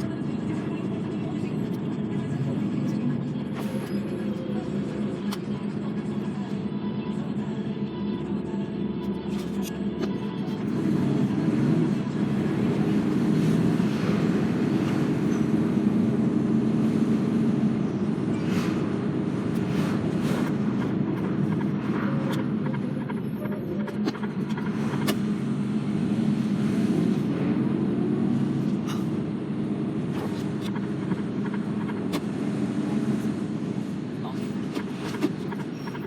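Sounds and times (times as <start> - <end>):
vehicle engine running: 0.0 - 36.0.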